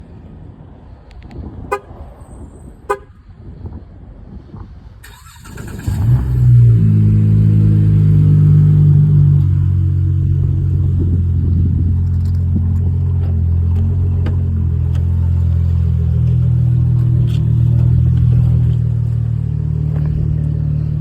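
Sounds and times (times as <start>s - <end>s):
car horn chirps: 1.7s - 2.0s, 2.8s - 3.2s
car engine starting and idling: 5.0s - 21.0s.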